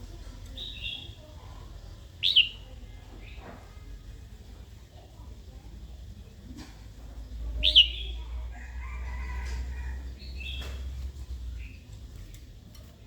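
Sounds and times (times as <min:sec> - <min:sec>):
bird calling and warbling: 0:00.5 - 0:03.4, 0:07.4 - 0:12.4.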